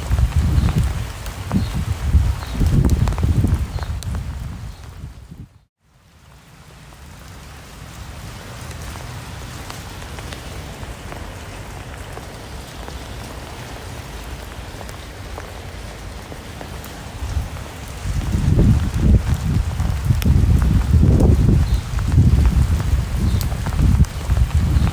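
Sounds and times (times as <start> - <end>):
steady rain hiss: 0.0 - 24.9
single rain drops ticking: 6.2 - 24.9.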